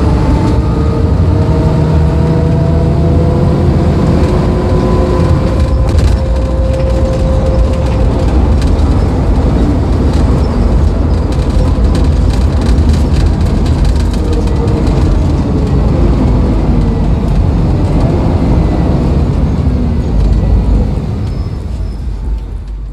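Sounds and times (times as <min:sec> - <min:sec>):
bus diesel engine drone: 0:00.0 - 0:22.9
engine whine: 0:00.0 - 0:22.9
body rattles: 0:04.8 - 0:18.0.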